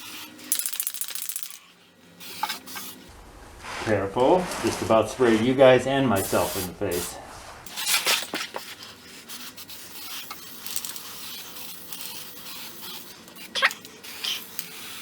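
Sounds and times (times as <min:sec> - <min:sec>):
aerosol can spraying: 0:06.2 - 0:08.4.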